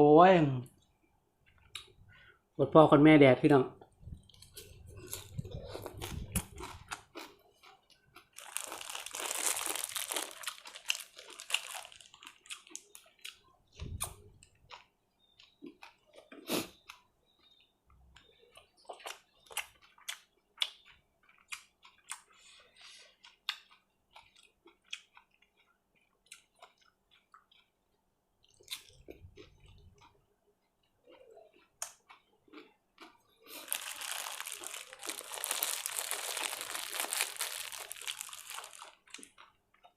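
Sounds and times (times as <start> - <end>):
person chewing and crunching: 4.2 - 39.9
crinkling: 8.2 - 13.2, 33.4 - 39.9.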